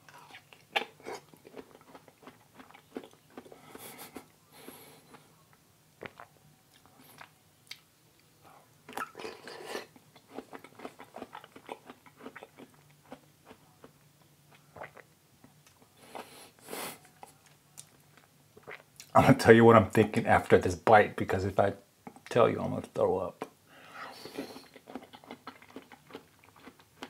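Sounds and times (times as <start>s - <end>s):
man chewing with wet clicks: 0.0s - 8.3s, 8.9s - 16.3s, 24.2s - 27.0s.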